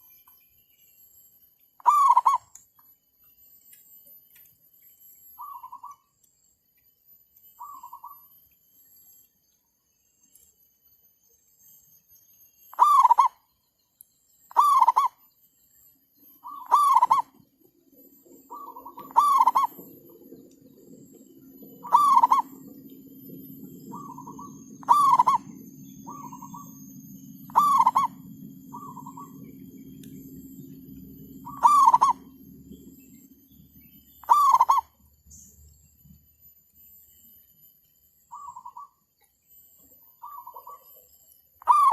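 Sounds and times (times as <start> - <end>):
doves cooing: 1.8 - 2.4, 12.8 - 13.3, 16.4 - 17.4, 18.4 - 26.8, 27.4 - 32.9, 34.2 - 34.9, 41.6 - 41.9
low steady drone: 5.1 - 41.9.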